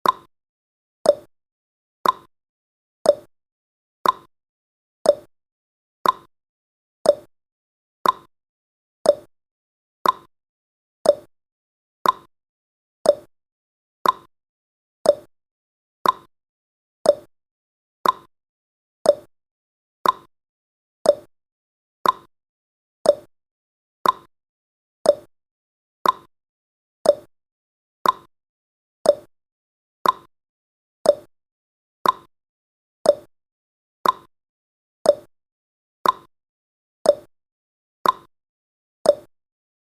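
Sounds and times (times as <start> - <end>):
timer ticking: 0.0 - 0.3, 1.1 - 1.3, 2.0 - 2.3, 3.1 - 3.3, 4.0 - 4.3, 5.1 - 5.3, 6.0 - 6.3, 7.0 - 7.3, 8.0 - 8.3, 9.0 - 9.3, 10.0 - 10.3, 11.0 - 11.3, 12.0 - 12.3, 13.0 - 13.3, 14.0 - 14.3, 15.0 - 15.3, 16.0 - 16.3, 17.0 - 17.3, 18.0 - 18.3, 19.0 - 19.3, 20.0 - 20.3, 21.0 - 21.3, 22.0 - 22.3, 23.0 - 23.3, 24.0 - 24.3, 25.0 - 25.3, 26.0 - 26.3, 27.0 - 27.3, 28.0 - 28.3, 29.0 - 29.3, 30.0 - 30.3, 31.0 - 31.3, 32.0 - 32.3, 33.0 - 33.3, 34.0 - 34.3, 35.1 - 35.3, 36.0 - 36.3, 37.1 - 37.3, 38.0 - 38.3, 39.1 - 39.3.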